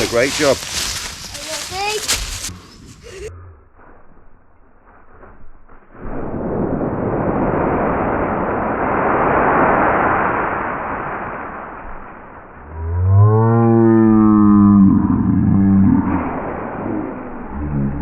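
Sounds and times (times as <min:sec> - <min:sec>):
dry leaves rustling and crunching: 0:00.0 - 0:02.6.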